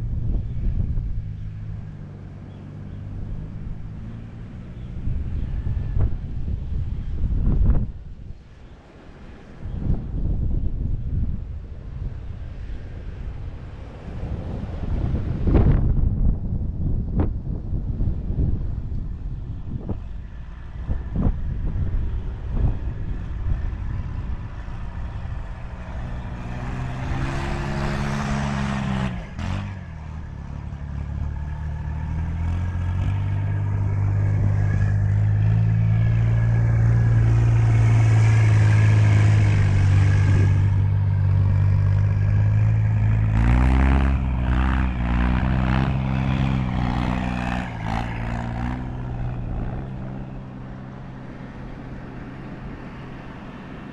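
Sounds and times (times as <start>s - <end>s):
all-terrain vehicle engine revving: 18.3s - 53.9s.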